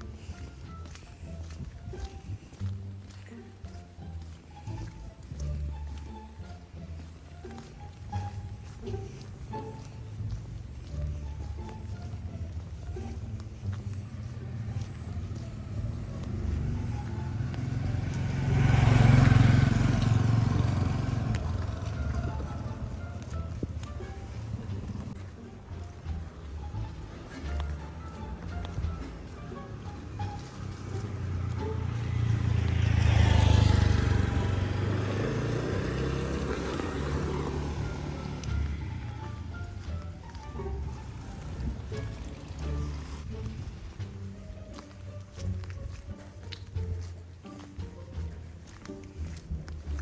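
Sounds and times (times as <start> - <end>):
vehicle engine hum: 0.0 - 50.0.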